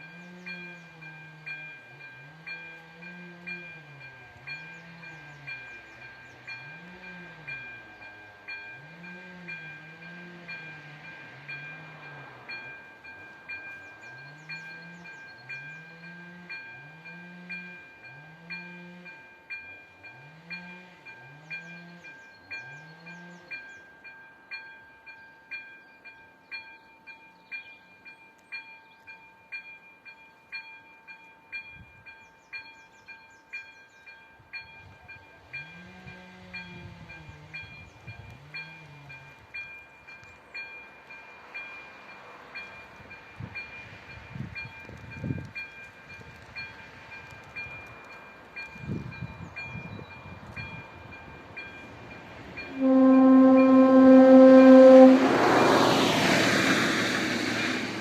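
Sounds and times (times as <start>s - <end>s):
approaching train rumble: 0.0s - 25.2s, 31.6s - 58.0s
steady warning tone: 51.8s - 56.1s.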